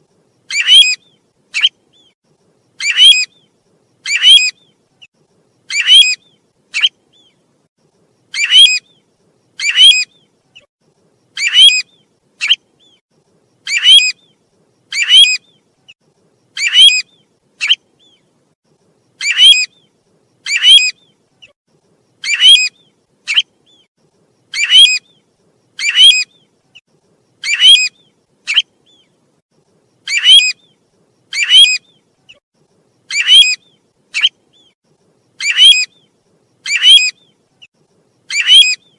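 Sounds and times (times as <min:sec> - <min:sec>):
bird whistled call: 0:00.5 - 0:02.2, 0:02.8 - 0:03.4, 0:04.0 - 0:04.8, 0:05.7 - 0:07.4, 0:08.4 - 0:09.0, 0:09.6 - 0:10.3, 0:13.7 - 0:14.3, 0:14.9 - 0:15.6, 0:16.6 - 0:18.2, 0:19.2 - 0:19.9, 0:22.2 - 0:23.9, 0:24.5 - 0:25.2, 0:25.8 - 0:26.5, 0:27.4 - 0:29.1, 0:30.1 - 0:32.0, 0:33.1 - 0:34.8, 0:35.4 - 0:37.4, 0:38.3 - 0:38.9.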